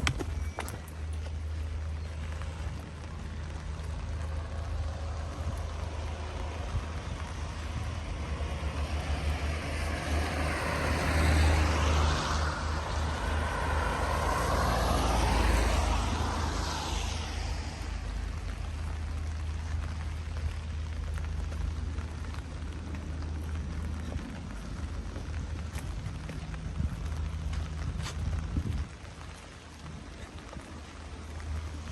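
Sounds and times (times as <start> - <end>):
tyre hiss on wet street: 0.8 - 31.9
steady low rumble: 15.9 - 31.9.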